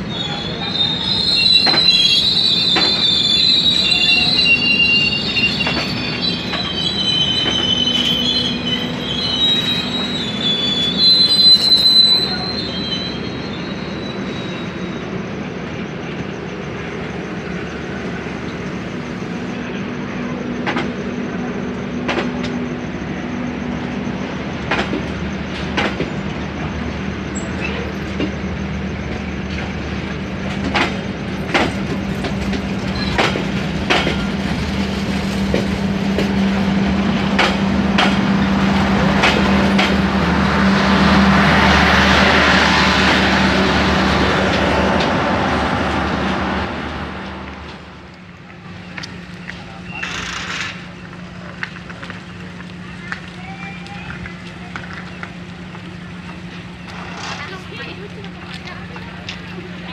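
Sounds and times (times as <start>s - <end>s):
train carriages rumbling: 0.0s - 59.9s
train wheels squealing on rails: 0.0s - 59.9s
wheels clacking over rail joints: 24.6s - 26.4s, 27.4s - 59.9s.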